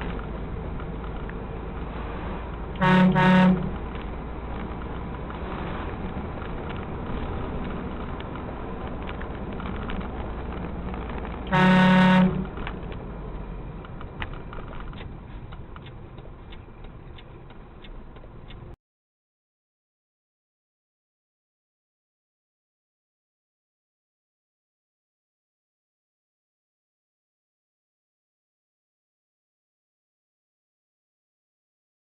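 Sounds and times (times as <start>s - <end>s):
road traffic noise: 0.0s - 18.8s
car horn blast: 2.8s - 3.8s, 11.5s - 12.5s
light ticks: 13.8s - 18.8s.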